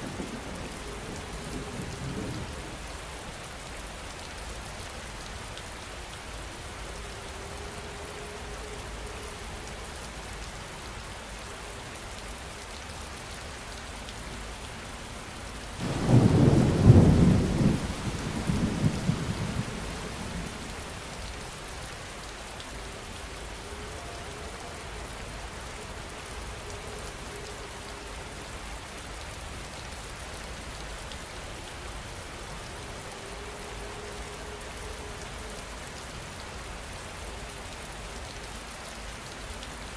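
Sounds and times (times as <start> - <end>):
steady rain falling: 0.0 - 39.9
thunderclap rolling and rumbling: 15.8 - 21.4.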